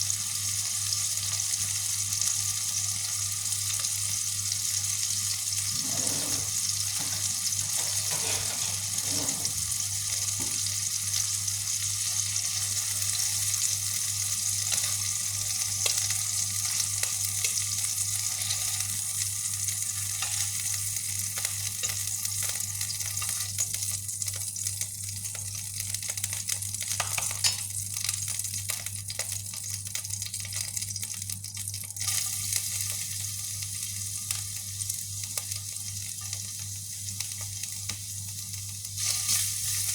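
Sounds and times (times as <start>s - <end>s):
meatballs sizzling in hot oil: 0.0s - 39.9s.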